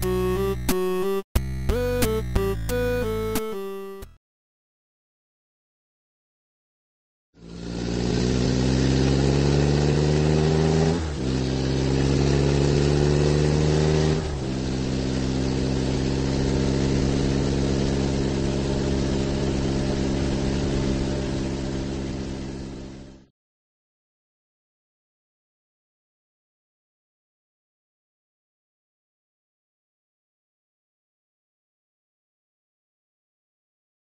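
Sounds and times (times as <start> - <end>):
car engine accelerating: 7.4 - 23.3.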